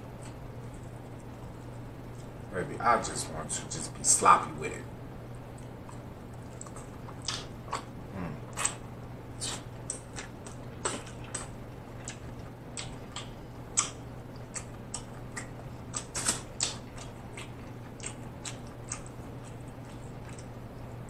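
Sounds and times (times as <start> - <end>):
steady low hum: 0.0 - 21.0
wet chewing and lip-smacking: 5.5 - 8.8, 9.4 - 21.0.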